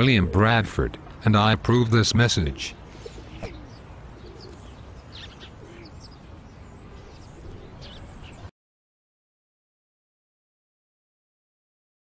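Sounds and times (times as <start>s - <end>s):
birds chirping: 0.0s - 8.5s
outdoor ambience hiss: 0.0s - 8.5s.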